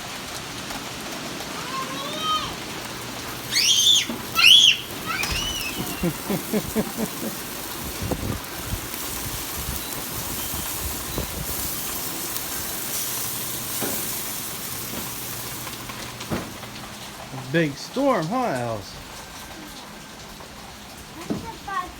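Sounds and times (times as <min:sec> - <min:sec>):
steady rain hiss: 0:00.0 - 0:21.9
short high squeaks: 0:03.5 - 0:06.0.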